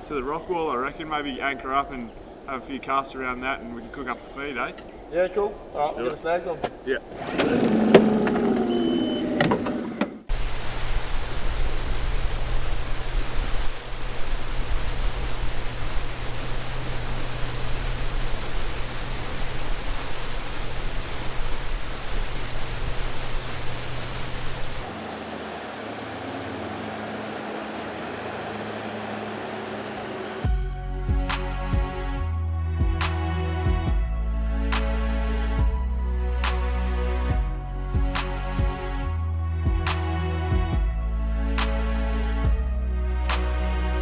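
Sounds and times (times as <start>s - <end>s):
boat motor hum: 7.0s - 30.5s
wind rushing over microphone: 10.3s - 24.9s.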